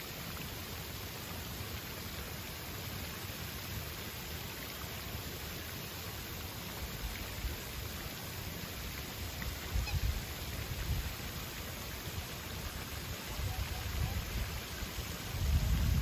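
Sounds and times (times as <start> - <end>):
fountain water splashing: 0.0 - 16.0.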